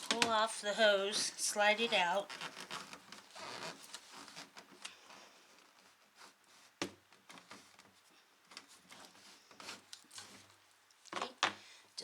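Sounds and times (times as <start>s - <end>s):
faint plastic scraping and clicking: 2.3s - 11.6s.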